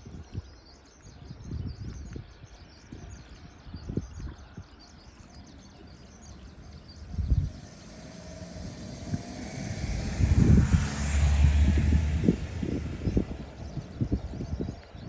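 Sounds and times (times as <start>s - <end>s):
small birds chirping: 0.0s - 15.0s
wind on microphone: 0.0s - 15.0s
electric train approaching: 5.8s - 14.1s.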